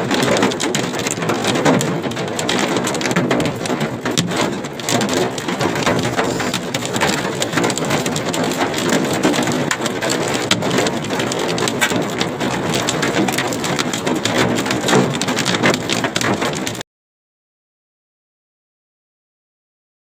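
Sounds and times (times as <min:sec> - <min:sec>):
hailstones pelting down: 0:00.0 - 0:16.8.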